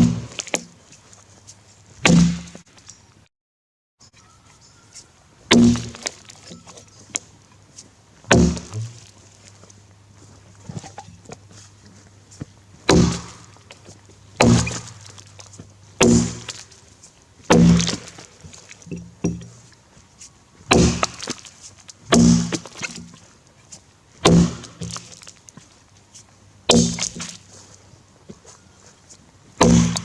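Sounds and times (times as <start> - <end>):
axe chopping into log: 0.0 - 0.7, 2.0 - 2.6, 5.5 - 6.2, 8.3 - 9.1, 12.8 - 13.6, 14.4 - 15.2, 16.0 - 16.7, 17.5 - 18.3, 19.2 - 19.6, 20.7 - 21.4, 22.1 - 23.2, 24.2 - 25.1, 26.7 - 27.4, 29.6 - 30.0.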